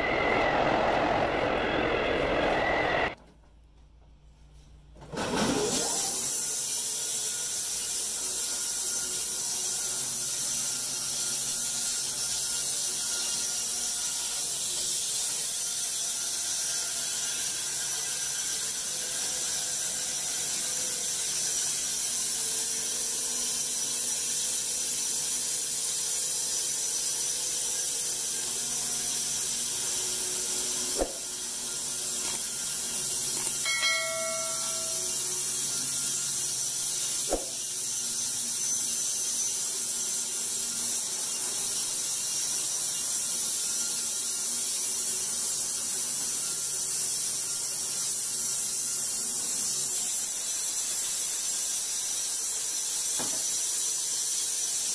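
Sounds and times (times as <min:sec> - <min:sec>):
machinery running: 0:00.0 - 0:03.2
sharp knock: 0:37.3 - 0:37.6.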